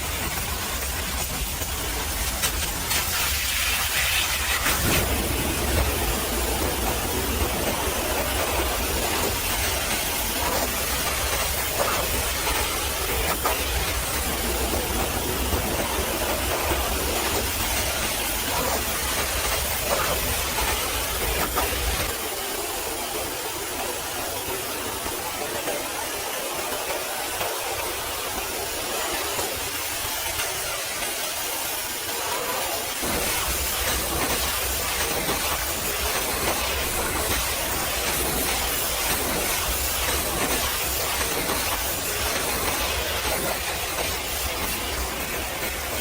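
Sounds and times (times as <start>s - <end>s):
pressure washer spray hissing: 0.0s - 22.0s.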